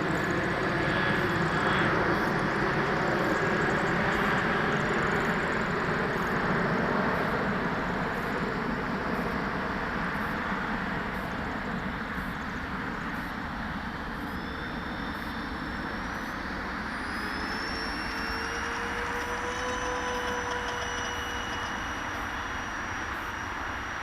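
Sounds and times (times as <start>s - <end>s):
electric fans rushing: 0.0s - 24.0s
rising whine: 0.0s - 24.0s.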